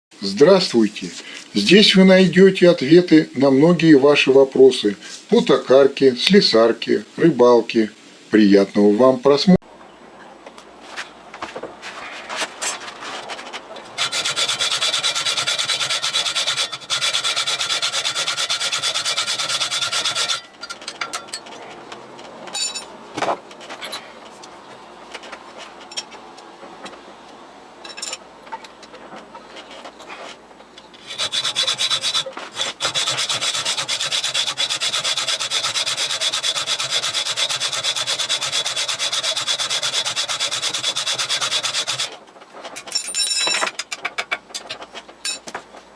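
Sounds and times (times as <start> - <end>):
metal lathe cutting: 14.0 - 20.5, 31.1 - 42.1
clicks and knocks: 42.3 - 45.8.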